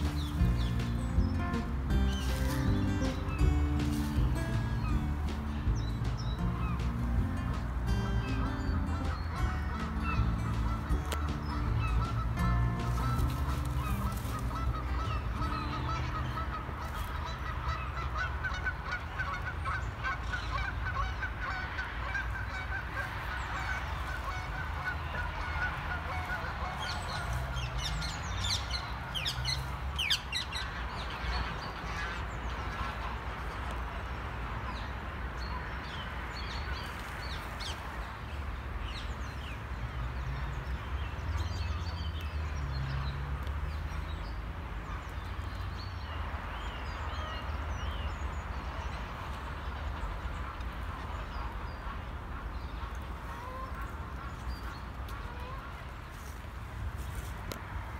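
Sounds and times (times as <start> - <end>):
steady low rumble: 0.0 - 34.5
birds calling: 0.0 - 57.9.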